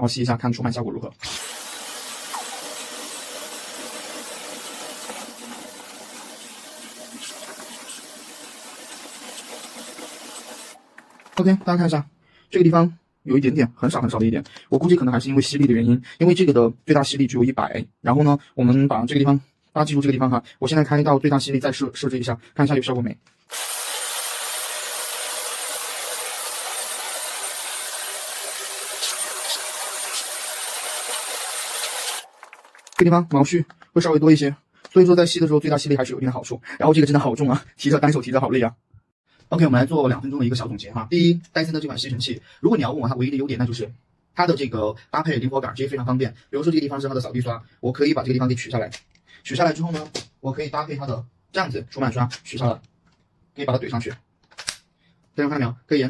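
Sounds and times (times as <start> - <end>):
vacuum cleaner running: 1.2 - 10.8, 23.5 - 32.3.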